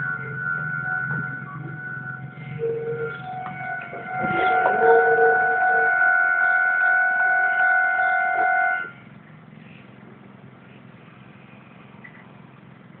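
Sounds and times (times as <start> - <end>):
level-crossing warning bell: 0.0 - 9.1.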